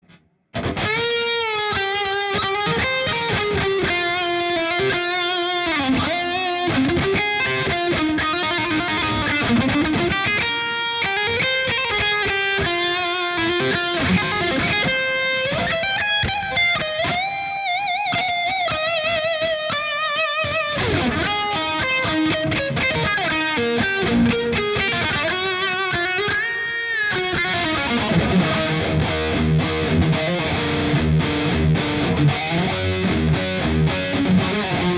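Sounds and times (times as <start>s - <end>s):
electric guitar melodic lead: 0.5s - 34.9s.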